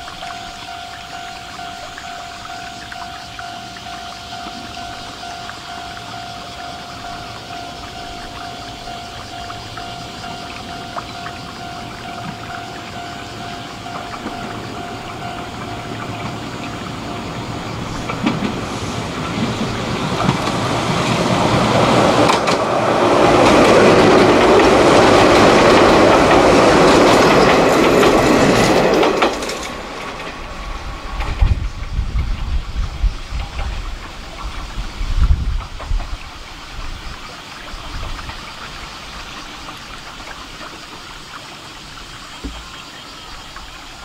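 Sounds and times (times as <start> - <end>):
electric train passing close by: 0.0 - 44.0.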